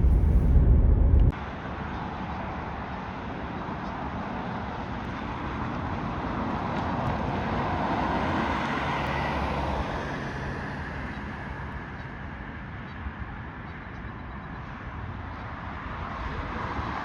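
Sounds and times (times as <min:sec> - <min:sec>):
vehicle passing: 0:00.0 - 0:01.3.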